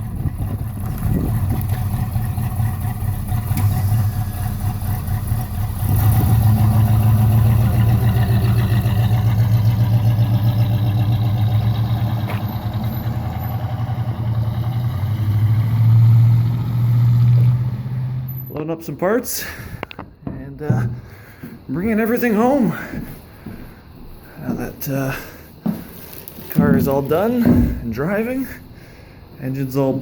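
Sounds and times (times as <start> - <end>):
car engine running: 0.0 - 18.5.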